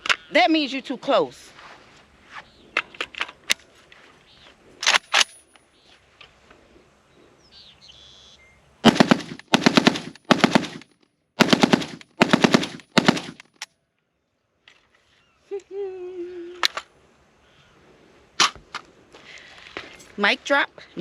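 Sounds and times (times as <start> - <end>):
sharp gunshot cracks: 8.8 - 13.4
rapid rifle shots: 8.8 - 13.6.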